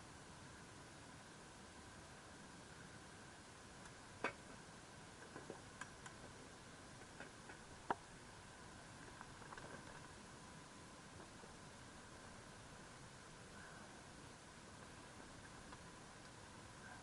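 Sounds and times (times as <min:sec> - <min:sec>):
faint steady hiss: 0:00.0 - 0:17.0
campfire crackling and popping: 0:03.8 - 0:06.4, 0:07.0 - 0:08.2, 0:08.8 - 0:10.2, 0:14.7 - 0:16.5.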